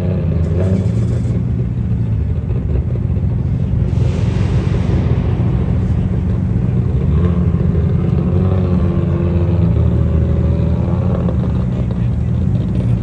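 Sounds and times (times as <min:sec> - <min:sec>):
car exhaust rumble: 0:00.0 - 0:13.0
pitched engine note: 0:03.6 - 0:09.7.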